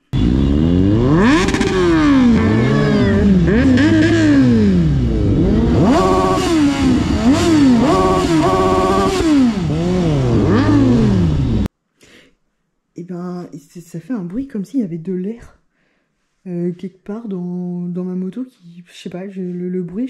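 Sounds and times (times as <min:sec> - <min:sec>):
motorcycle engine revving: 0:00.0 - 0:11.7.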